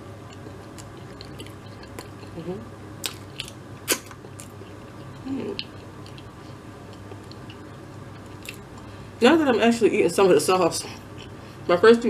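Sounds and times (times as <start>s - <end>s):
person chewing food: 0.2s - 2.4s, 3.0s - 8.9s, 10.9s - 11.4s.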